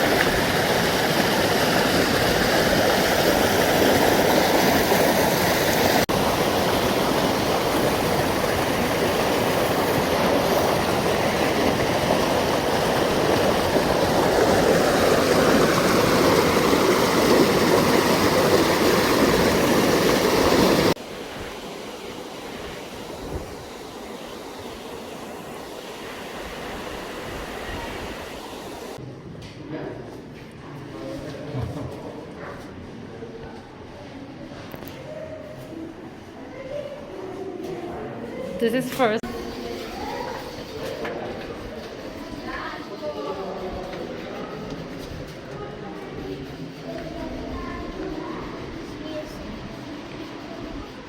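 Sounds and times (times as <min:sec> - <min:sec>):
mountain river rushing: 0:00.0 - 0:29.0.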